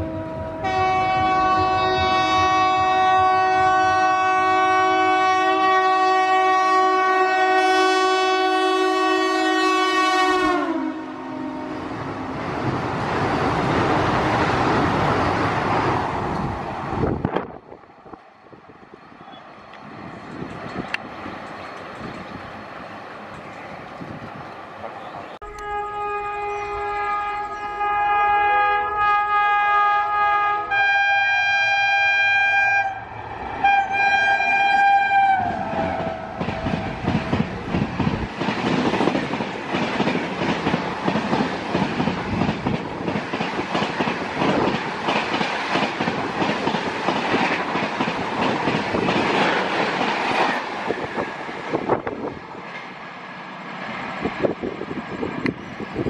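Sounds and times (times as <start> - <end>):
train horn blasts: 0.0 - 12.0, 25.4 - 37.3.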